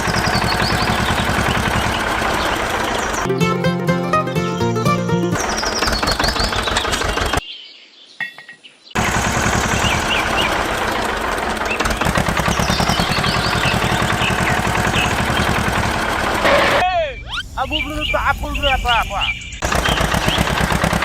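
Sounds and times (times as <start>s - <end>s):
small engine chugging: 0.0s - 3.3s, 5.4s - 7.4s, 9.0s - 16.8s, 19.6s - 21.0s.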